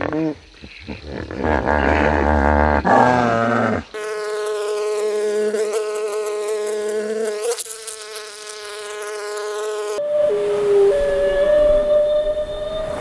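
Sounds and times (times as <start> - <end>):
honeybees buzzing: 3.9 - 11.8.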